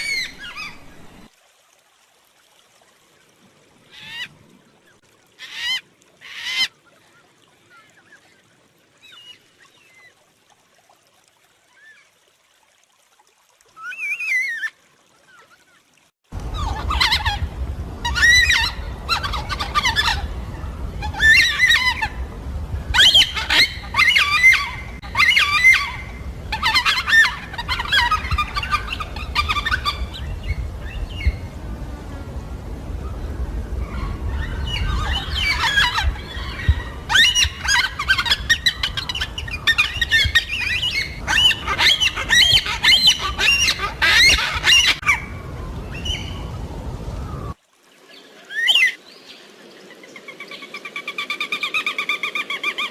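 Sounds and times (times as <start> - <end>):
cockatoos squawking: 16.5 - 20.4, 21.0 - 22.3, 22.9 - 30.3, 33.8 - 45.3.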